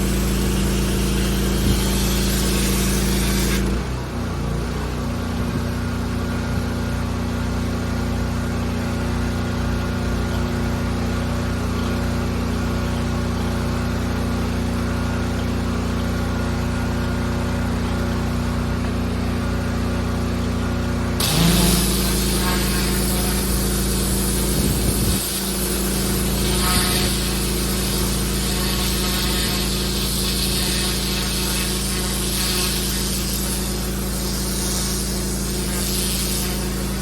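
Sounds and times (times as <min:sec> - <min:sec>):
high-pressure water spray hissing: 0:00.0 - 0:03.9, 0:21.2 - 0:37.0
pressure washer engine running: 0:00.0 - 0:37.0.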